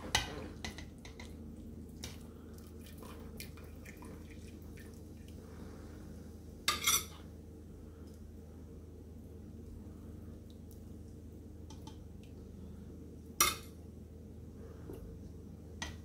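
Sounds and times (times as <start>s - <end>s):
steady low hum: 0.0s - 16.0s
broth dripping and splashing: 2.0s - 5.4s.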